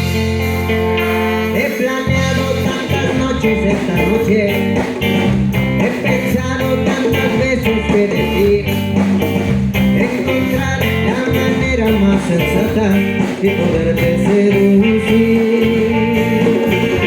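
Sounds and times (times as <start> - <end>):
live band playing upbeat song: 0.0 - 17.0.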